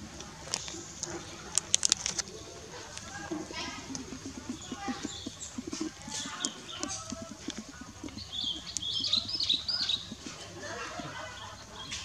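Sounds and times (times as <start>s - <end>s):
birds chirping: 0.0s - 12.0s
light clicks and rustles: 0.2s - 4.5s.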